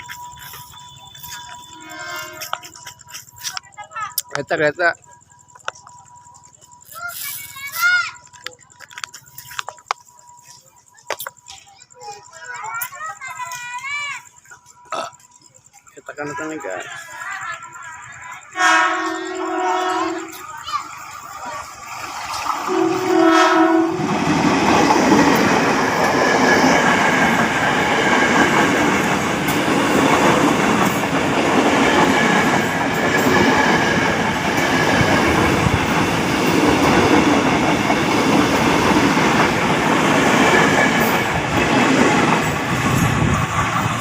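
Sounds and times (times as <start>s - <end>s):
train rumbling: 0.0s - 44.0s
train horn: 0.8s - 2.7s, 18.5s - 20.4s, 22.7s - 24.2s
wheels clacking over rail joints: 19.1s - 44.0s.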